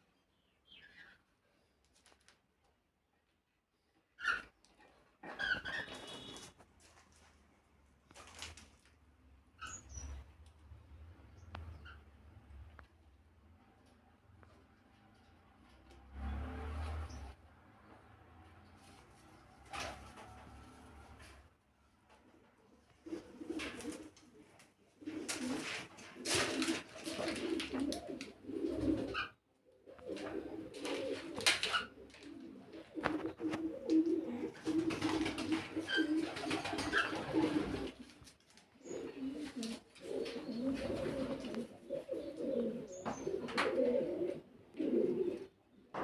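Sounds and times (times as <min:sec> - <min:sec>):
birds calling: 0:09.6 - 0:12.4, 0:38.8 - 0:46.0
birds cooing: 0:23.0 - 0:38.2, 0:38.8 - 0:46.0.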